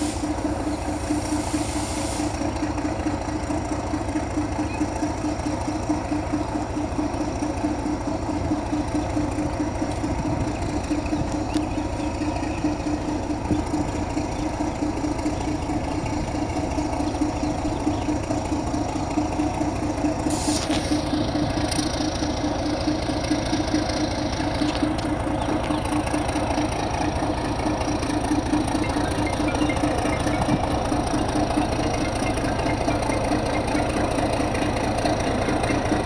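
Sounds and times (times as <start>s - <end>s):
hiss: 0.0s - 2.5s, 20.3s - 21.1s
diesel locomotive engine humming: 0.0s - 36.0s.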